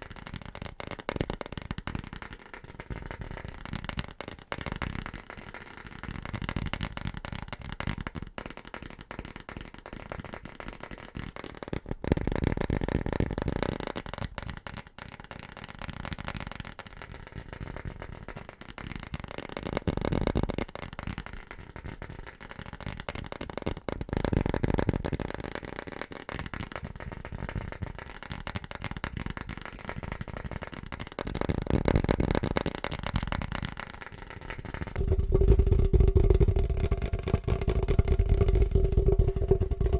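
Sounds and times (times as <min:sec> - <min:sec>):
rapid tapping on objects: 0:00.0 - 0:39.9.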